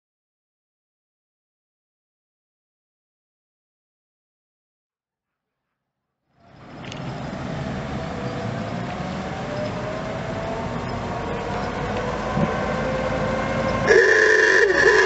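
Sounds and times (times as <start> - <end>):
car engine pulling away: 6.4 - 15.0
thin steady whine: 13.8 - 15.0.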